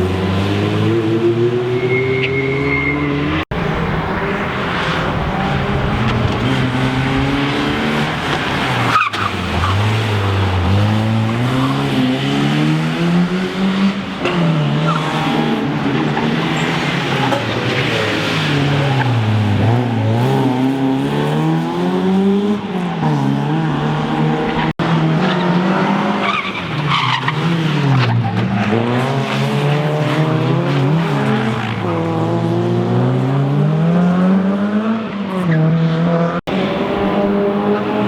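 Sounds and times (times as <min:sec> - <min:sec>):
rally car engine revving: 0:00.0 - 0:38.0
tyre squeal: 0:01.6 - 0:03.4.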